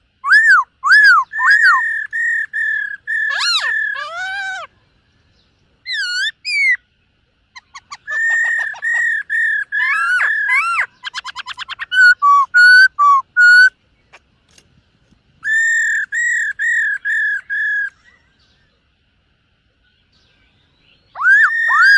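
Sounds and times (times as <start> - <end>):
bird fast trill: 0.2 - 4.7, 5.8 - 6.8, 7.5 - 13.8, 15.4 - 18.4, 21.0 - 21.9
bird singing whistled phrases: 0.2 - 4.7, 5.9 - 6.8, 7.6 - 13.8, 15.4 - 18.5, 20.2 - 21.9.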